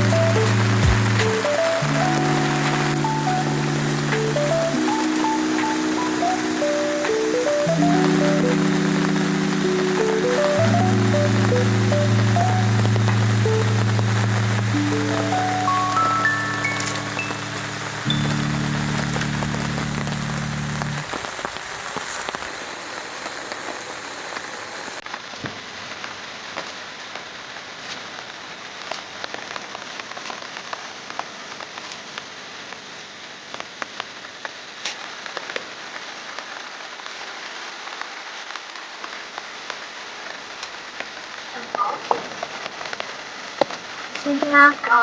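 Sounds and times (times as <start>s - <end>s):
raindrops hitting: 0.0s - 25.4s, 37.8s - 45.0s
steady rainfall: 0.0s - 45.0s.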